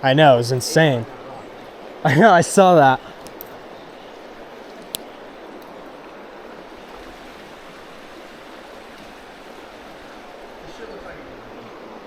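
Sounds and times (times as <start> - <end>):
creek water rushing: 0.0 - 12.0
sharp click: 3.2 - 3.6, 4.8 - 5.2.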